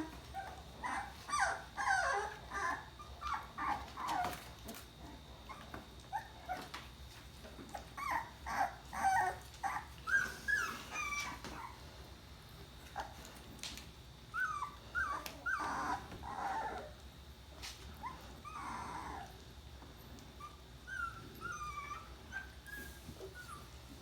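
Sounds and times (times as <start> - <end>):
puppies crying: 0.0 - 4.5, 7.7 - 11.8, 14.3 - 17.0, 18.0 - 19.4, 20.4 - 23.7
puppies whimpering: 0.0 - 6.8, 7.7 - 11.8, 14.3 - 17.0, 18.0 - 19.4, 20.4 - 23.7.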